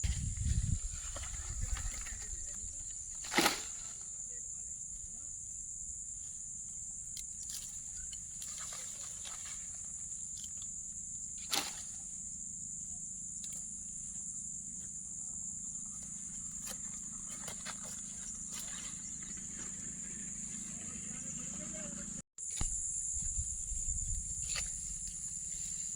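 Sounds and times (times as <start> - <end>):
insects chirring: 0.0 - 25.9.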